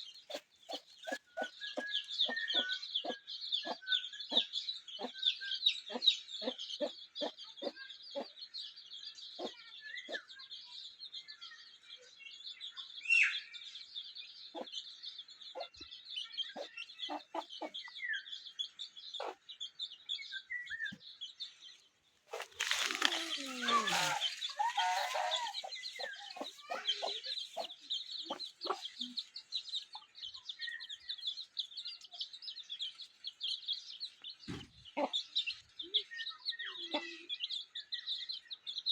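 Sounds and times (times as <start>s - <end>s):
chickens clucking: 0.2s - 5.2s, 9.4s - 10.2s, 15.5s - 15.9s, 16.5s - 17.9s, 19.2s - 19.5s, 22.3s - 30.2s, 34.5s - 35.6s.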